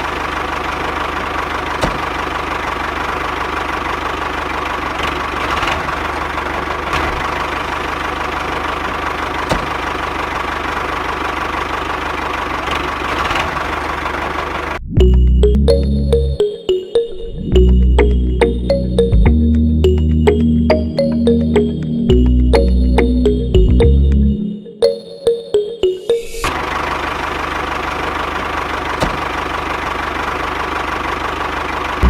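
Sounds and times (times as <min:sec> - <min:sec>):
engine idling: 0:00.0 - 0:14.8, 0:26.5 - 0:32.0.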